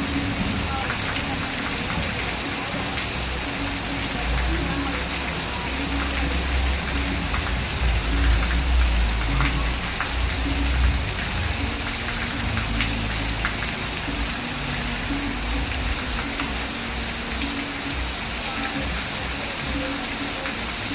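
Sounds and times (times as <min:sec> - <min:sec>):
steady rain falling: 0:00.0 - 0:20.9.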